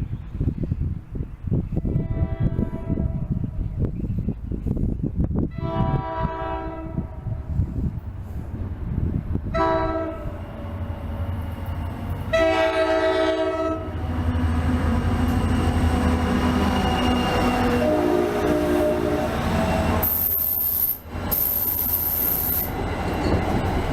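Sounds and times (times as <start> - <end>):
train rumble: 0.0 - 23.9
train horn blasts: 1.8 - 3.4, 5.5 - 7.5, 9.5 - 10.5, 12.3 - 14.0, 16.5 - 20.8.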